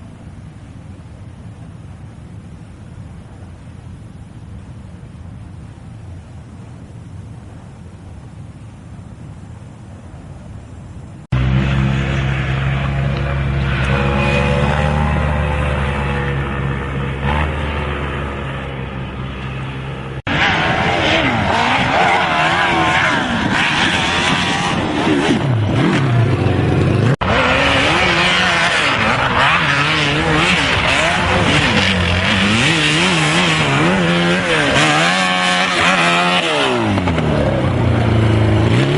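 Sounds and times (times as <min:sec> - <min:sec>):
motorcycle engines revving: 0:11.2 - 0:38.9.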